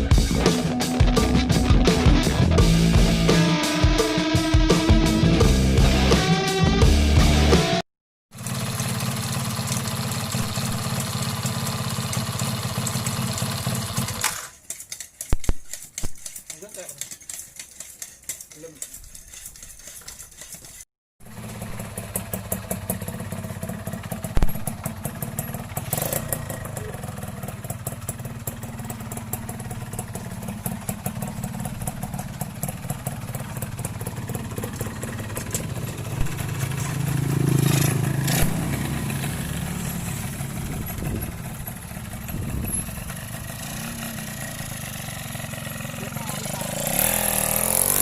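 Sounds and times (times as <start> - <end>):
two-stroke engine idling: 8.4 - 19.4, 21.2 - 48.0.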